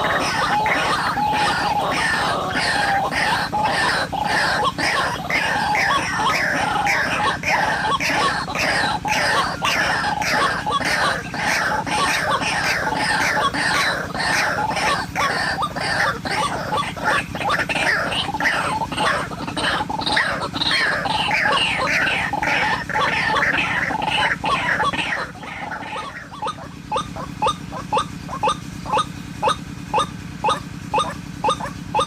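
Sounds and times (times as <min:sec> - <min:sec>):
waterhen calling: 0:00.0 - 0:32.0.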